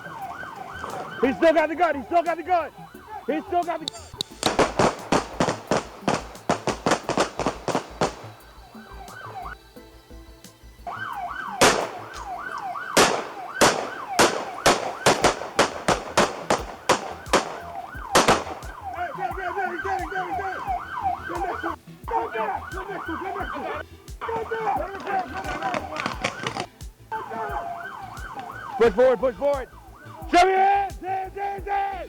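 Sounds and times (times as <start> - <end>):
siren yelping: 0.0 - 32.0
gunshots: 3.6 - 9.3, 11.5 - 19.0, 24.2 - 29.0.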